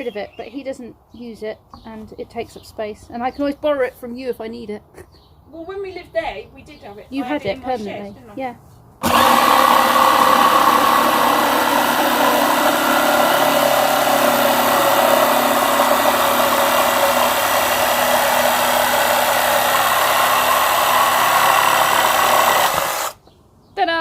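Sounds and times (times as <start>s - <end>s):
electric saw cutting wood: 9.0s - 23.2s.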